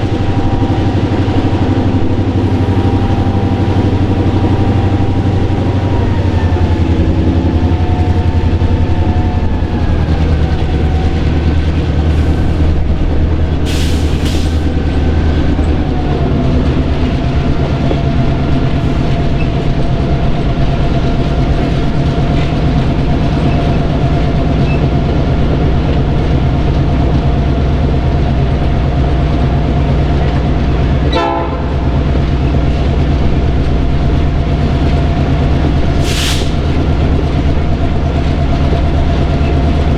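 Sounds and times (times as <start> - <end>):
high engine whine: 0.0 - 18.4
diesel locomotive engine rumble: 0.0 - 39.9
air hiss: 13.7 - 14.7, 36.0 - 36.7.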